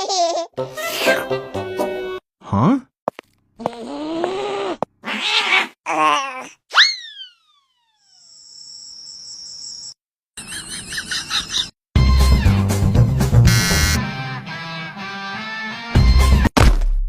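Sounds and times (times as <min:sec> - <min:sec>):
cartoon cat meowing: 0:03.7 - 0:07.3
rising and sliding whistle: 0:06.7 - 0:08.9.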